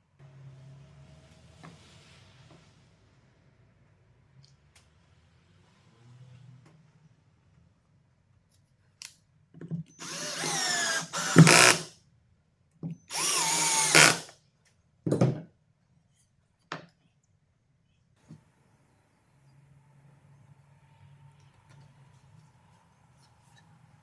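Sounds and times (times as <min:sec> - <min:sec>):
electric drill running: 0:10.0 - 0:11.9, 0:13.1 - 0:14.3.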